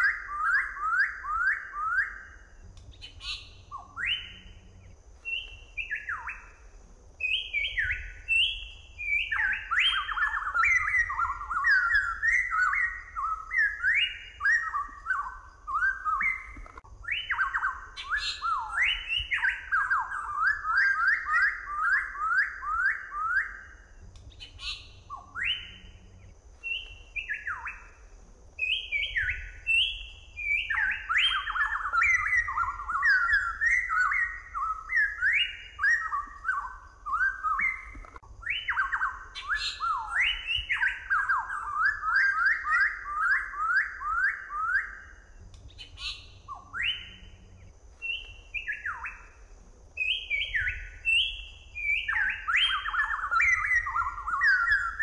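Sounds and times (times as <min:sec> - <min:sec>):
bird whistling: 0:00.0 - 0:06.6, 0:07.2 - 0:28.0, 0:28.6 - 0:49.4, 0:50.0 - 0:55.0.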